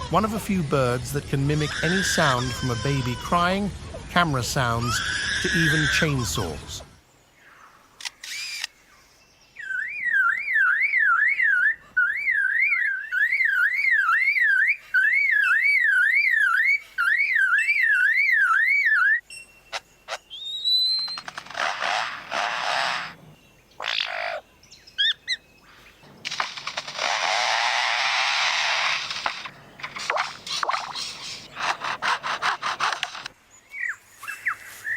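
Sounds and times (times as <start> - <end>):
rising whistles: 20.3 - 21.2
harsh rasping bursts: 26.2 - 33.3.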